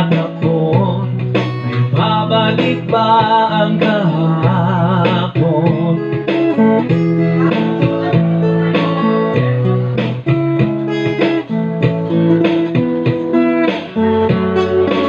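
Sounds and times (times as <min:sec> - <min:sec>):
sustained low bass notes: 0:00.0 - 0:13.3
plucked guitar notes: 0:00.0 - 0:15.0.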